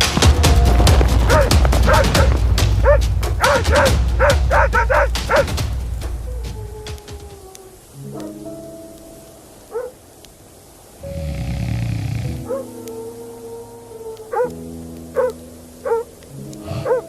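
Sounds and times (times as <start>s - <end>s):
low rumble: 0.0s - 7.0s
music: 0.0s - 10.0s, 11.0s - 17.0s
dog barking and yelping: 1.2s - 5.6s, 9.7s - 10.0s, 12.4s - 17.0s.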